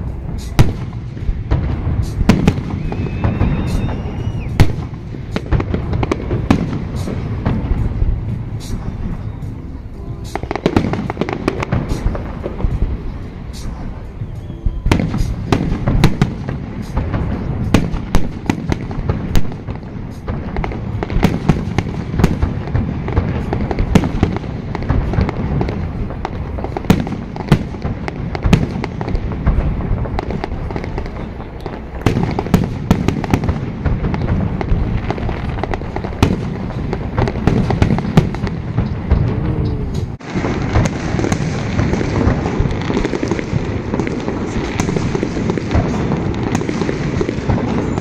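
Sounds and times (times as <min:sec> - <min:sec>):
continuous low rumble: 0:00.0 - 0:48.0
fireworks cracking and banging: 0:00.0 - 0:48.0.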